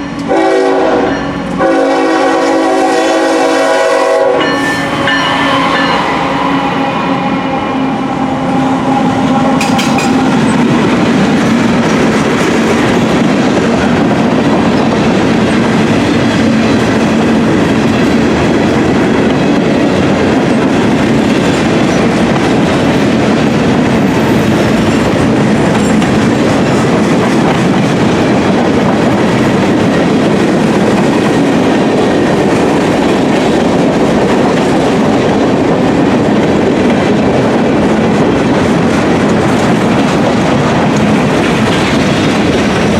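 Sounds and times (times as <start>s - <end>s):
freight train wheels rumbling on rails: 0.0s - 42.9s
clickety-clack over rail joints: 9.1s - 42.9s.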